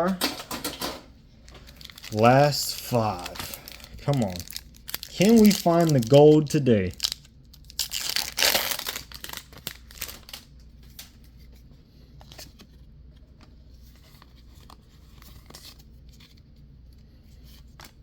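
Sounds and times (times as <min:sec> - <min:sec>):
cards rustling and clicking: 0:01.4 - 0:11.3
foil wrapper tearing and crinkling: 0:01.6 - 0:10.5.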